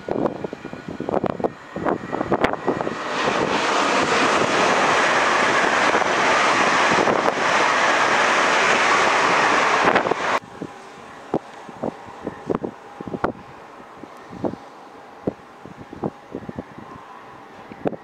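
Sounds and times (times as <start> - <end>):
train clattering: 0.0 - 10.4
train rushing roar: 0.0 - 18.0.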